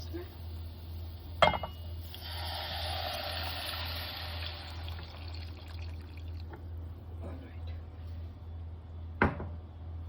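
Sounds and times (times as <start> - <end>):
milk pouring into hot pan hissing: 0.5 - 6.6.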